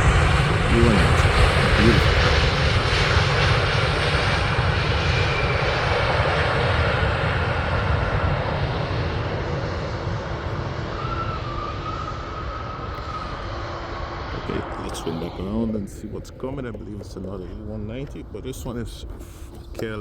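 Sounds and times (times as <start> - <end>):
jet airliner engine rumble: 0.0 - 20.0.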